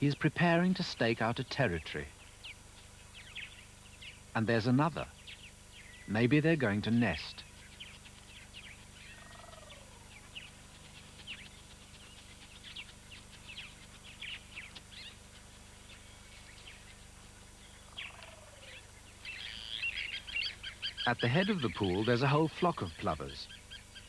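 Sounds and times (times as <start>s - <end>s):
plovers calling: 8.8s - 24.0s.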